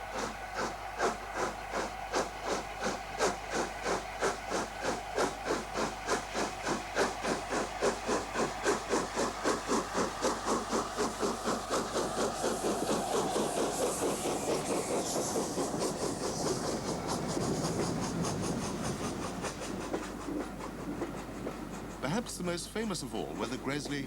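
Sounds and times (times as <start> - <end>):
hiss of steam: 0.0 - 24.0
steam locomotive chuffing: 0.0 - 24.0.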